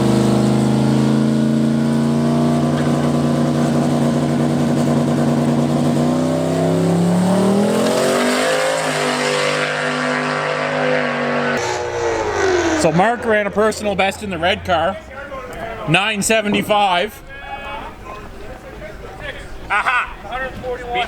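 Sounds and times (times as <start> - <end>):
race car engine revving: 0.0 - 15.6.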